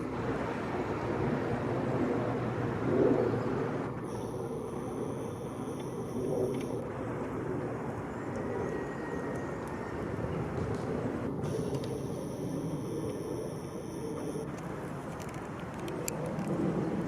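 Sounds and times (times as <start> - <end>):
distant road traffic rumble: 0.0 - 17.0.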